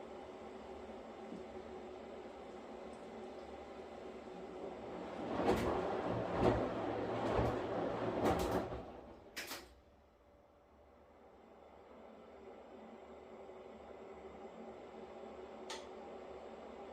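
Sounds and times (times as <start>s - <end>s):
washing machine swishing: 1.4s - 9.9s.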